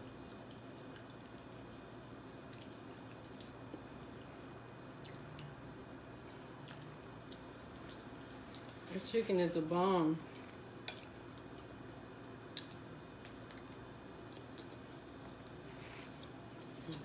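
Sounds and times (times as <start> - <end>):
soft chewing: 0.1 - 9.0, 10.2 - 17.0.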